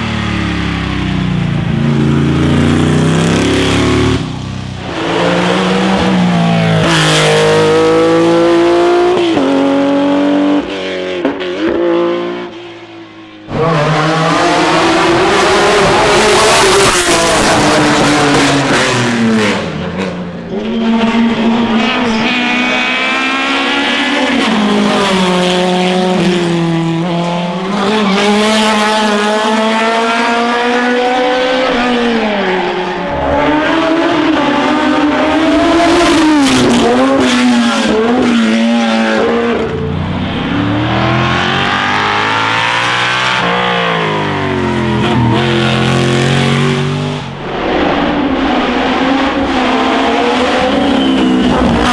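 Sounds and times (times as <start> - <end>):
racing car engines at full throttle: 0.0 - 51.9.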